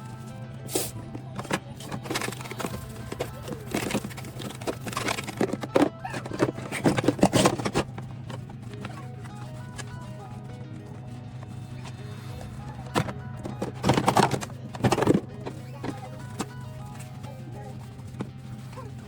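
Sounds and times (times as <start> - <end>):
soft background music: 0.0 - 19.0
dishes clattering: 1.2 - 9.1, 12.8 - 17.0.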